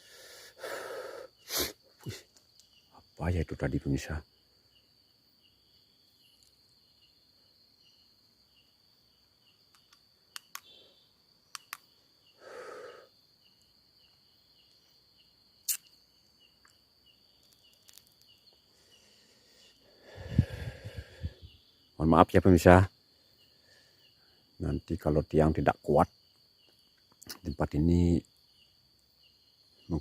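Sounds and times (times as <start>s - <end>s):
crickets trilling: 0.0s - 30.0s
soft insect chirp: 0.0s - 30.0s
sharp clicks: 9.7s - 10.8s, 11.5s - 11.9s.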